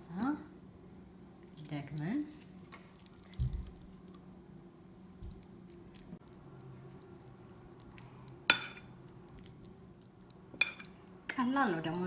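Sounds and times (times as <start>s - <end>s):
low steady hum: 0.0s - 12.0s
wet squishing of filling: 1.5s - 11.2s
utensil clinking against dish: 8.5s - 8.9s, 10.6s - 11.0s.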